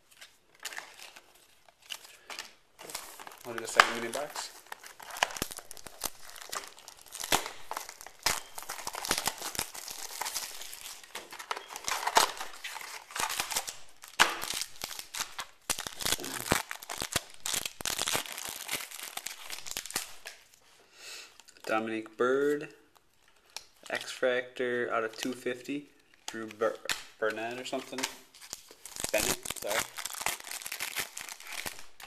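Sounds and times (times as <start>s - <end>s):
foil packs ripped and crinkled: 0.6s - 20.4s, 28.4s - 32.0s.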